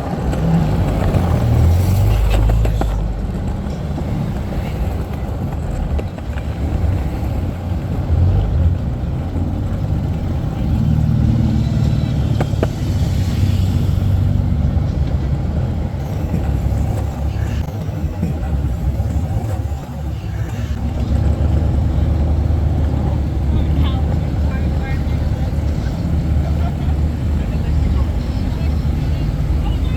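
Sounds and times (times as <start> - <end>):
car engines running: 0.0 - 29.9.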